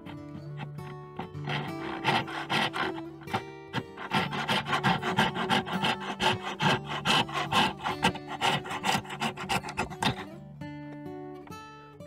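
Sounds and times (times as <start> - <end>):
hand saw cutting wood: 0.0 - 10.4.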